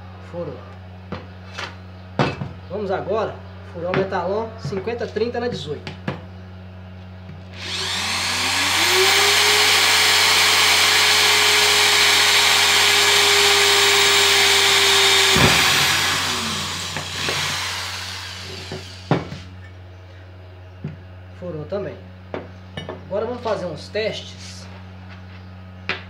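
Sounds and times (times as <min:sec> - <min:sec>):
drill drilling through steel: 0:07.6 - 0:19.5.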